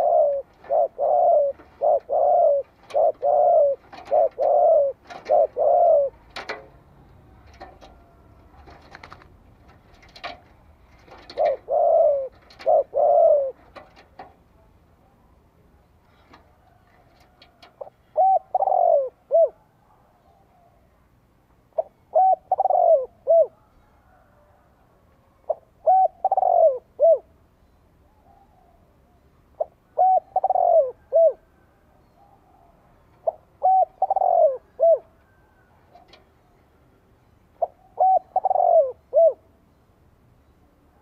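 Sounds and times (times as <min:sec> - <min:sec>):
dove cooing: 0:00.0 - 0:14.3, 0:16.1 - 0:20.8, 0:21.8 - 0:27.4, 0:28.1 - 0:36.6, 0:37.5 - 0:39.6.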